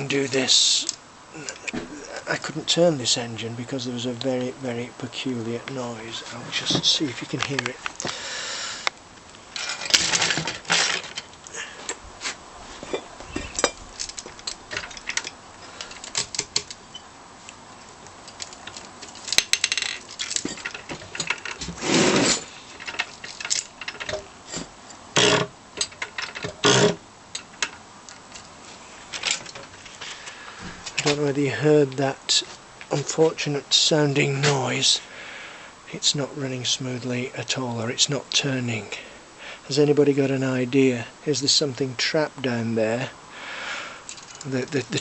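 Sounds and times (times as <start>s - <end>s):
short grinding scrapes: 21.6s - 22.6s.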